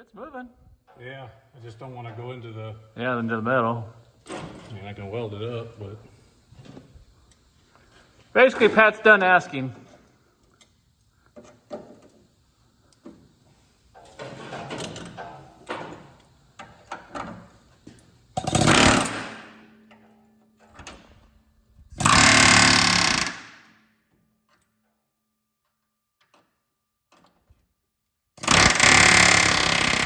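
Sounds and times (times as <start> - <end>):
power tool bursts on metal: 18.3 - 19.7, 22.0 - 23.9, 28.4 - 30.0.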